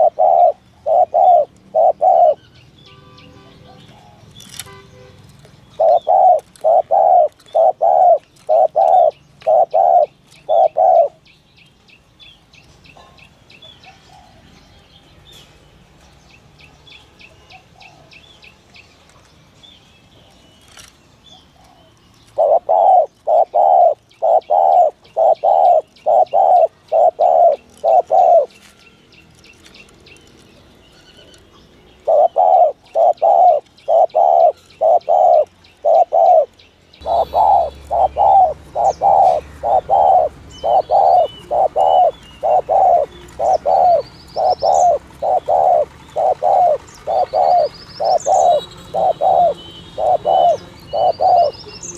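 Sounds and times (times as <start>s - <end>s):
dove cooing: 0.0s - 2.5s, 5.7s - 11.2s, 21.5s - 28.7s, 32.0s - 51.9s
small birds chirping: 0.0s - 51.9s.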